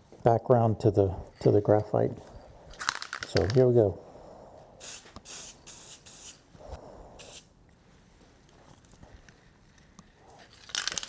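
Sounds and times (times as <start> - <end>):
spray paint can hissing: 4.8 - 6.4, 7.2 - 7.5.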